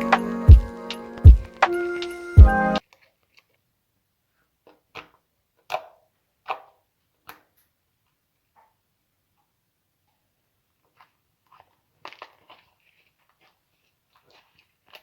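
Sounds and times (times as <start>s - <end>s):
background music with a beat: 0.0s - 2.8s.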